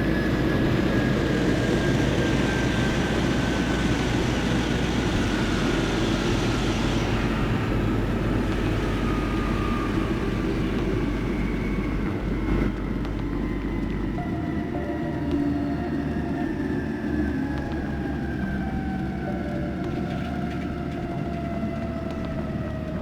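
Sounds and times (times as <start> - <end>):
train running rumble: 0.0 - 23.0.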